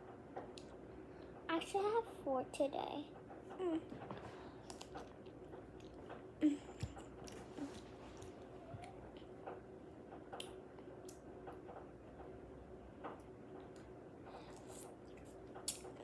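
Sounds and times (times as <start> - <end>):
person chewing: 4.6 - 9.2, 14.4 - 16.0.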